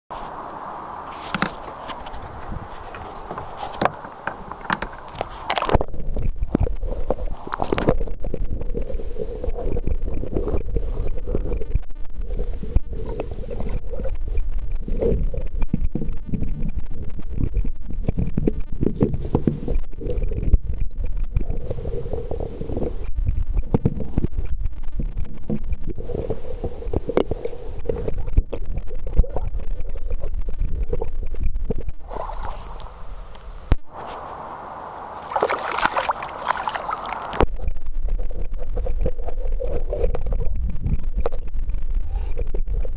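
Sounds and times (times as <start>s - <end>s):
underwater rumbling wash: 0.1s - 42.9s
small clicks and knocks: 1.2s - 8.1s.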